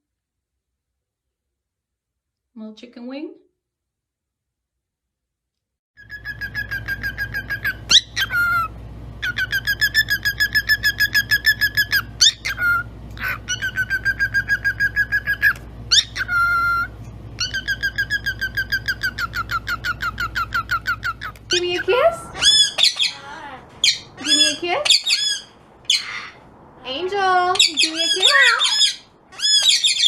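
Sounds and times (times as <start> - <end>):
pet bird chirping rapidly: 6.0 - 30.0.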